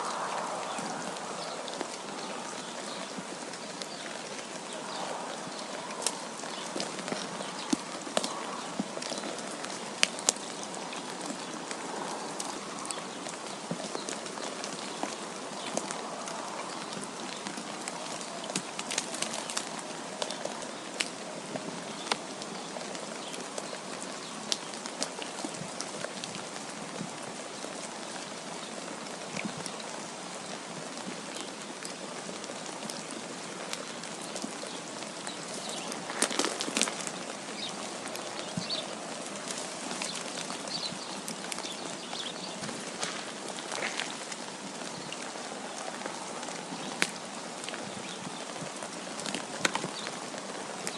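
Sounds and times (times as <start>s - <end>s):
wind hiss: 0.0s - 9.0s.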